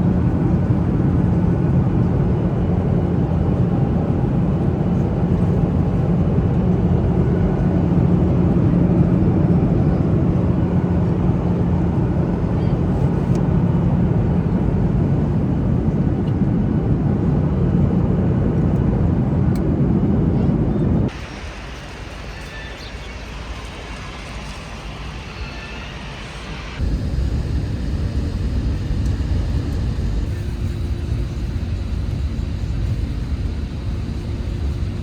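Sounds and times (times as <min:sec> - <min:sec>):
vehicle driving drone: 0:26.5 - 0:35.0.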